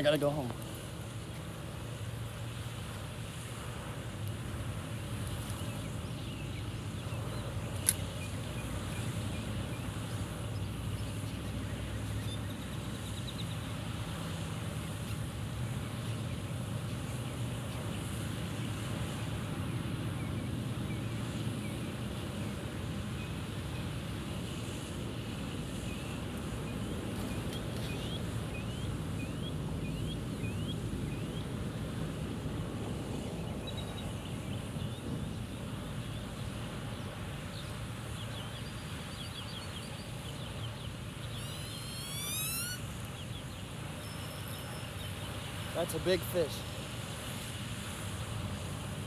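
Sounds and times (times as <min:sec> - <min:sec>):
birds chirping: 0:25.8 - 0:31.5, 0:33.4 - 0:46.7.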